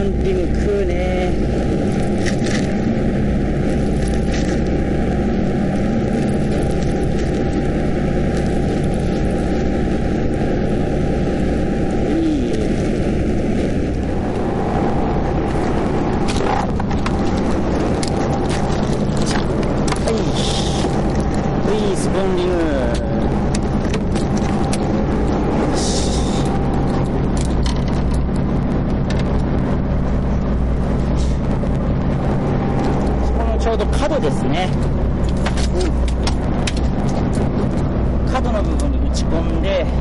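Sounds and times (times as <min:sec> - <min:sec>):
steady low rumbling: 0:00.0 - 0:40.0.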